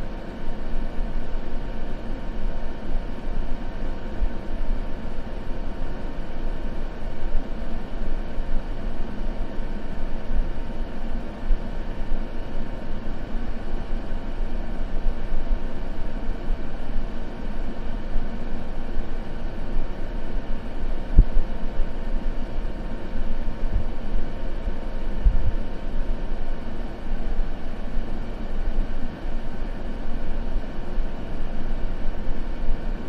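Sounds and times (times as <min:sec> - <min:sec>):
deep white noise hiss: 0:00.0 - 0:33.0
faint hum: 0:00.0 - 0:33.0.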